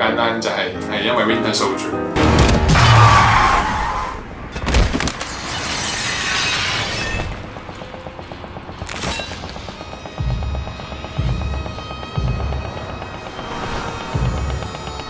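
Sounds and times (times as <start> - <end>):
music: 0.0 - 3.2, 9.8 - 15.0.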